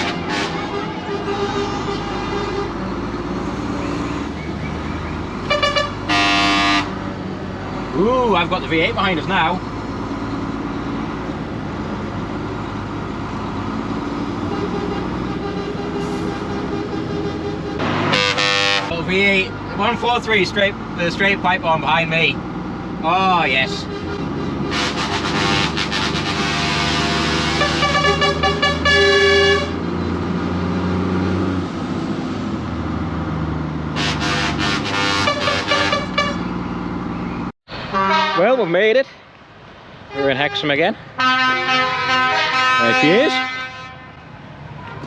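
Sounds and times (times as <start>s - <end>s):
lorry engine droning: 0.0s - 37.5s
lorry air horn: 5.5s - 6.9s, 14.5s - 18.9s, 24.0s - 29.8s, 34.0s - 36.4s, 41.2s - 44.2s.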